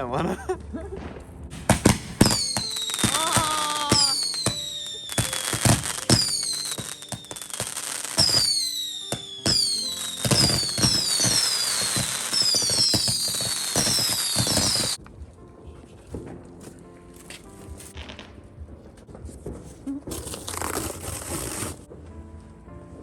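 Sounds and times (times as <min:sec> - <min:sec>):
fireworks crackling and bangs: 0:01.0 - 0:15.2, 0:17.8 - 0:22.0
whistling fireworks: 0:01.6 - 0:15.0.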